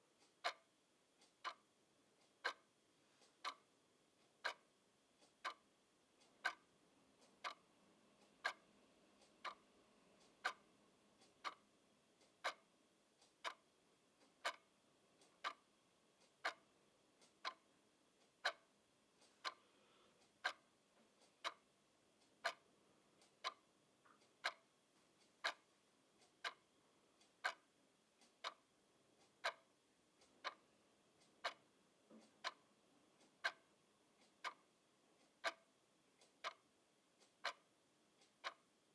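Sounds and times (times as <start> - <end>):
clock ticking: 0.1 - 19.6, 20.2 - 38.9.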